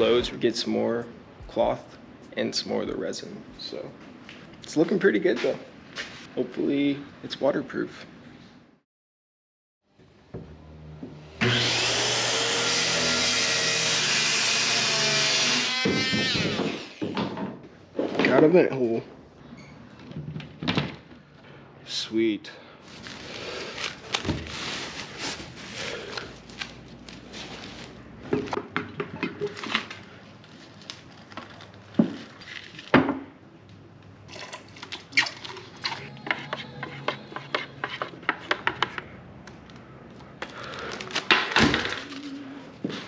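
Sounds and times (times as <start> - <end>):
crinkling scrapes: 22.8 - 28.1, 29.5 - 32.9.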